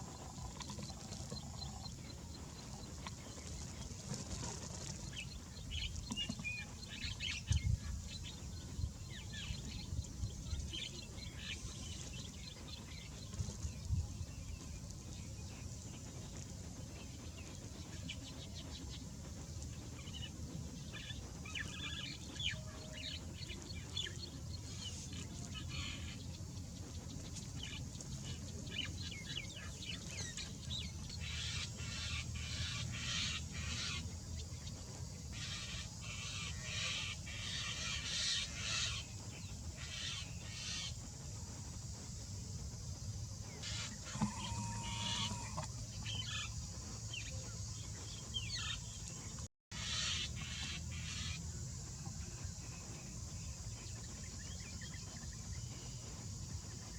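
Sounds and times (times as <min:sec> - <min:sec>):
steady low rumble: 0:00.0 - 0:44.2
birds chirping rapidly: 0:43.5 - 0:52.1.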